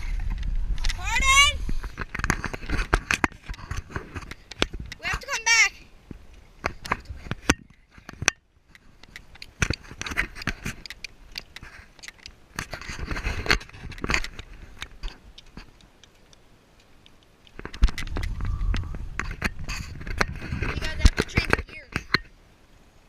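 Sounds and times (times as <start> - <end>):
low rumble: 0.0 - 1.9, 18.0 - 20.3
clicking and rattling: 6.6 - 22.3.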